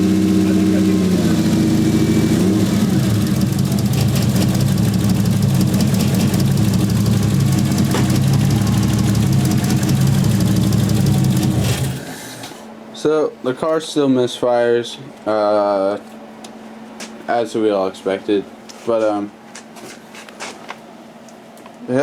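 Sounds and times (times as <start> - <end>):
car engine idling unevenly: 0.0 - 12.6.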